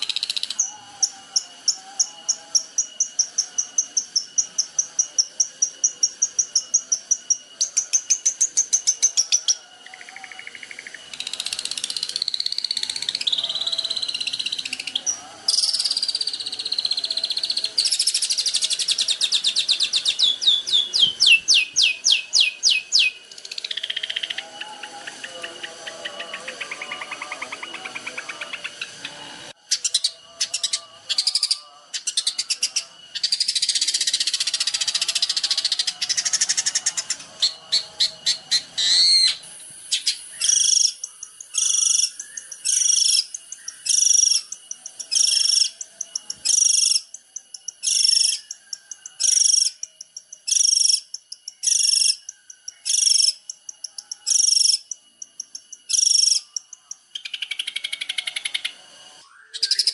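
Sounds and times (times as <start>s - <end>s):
shrike singing: 0.0s - 59.9s.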